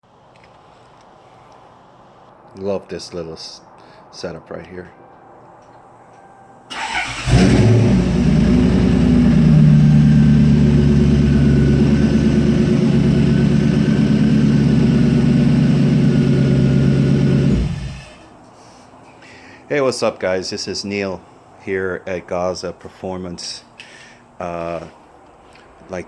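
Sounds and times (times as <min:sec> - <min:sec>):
car engine revving: 0:06.7 - 0:18.3.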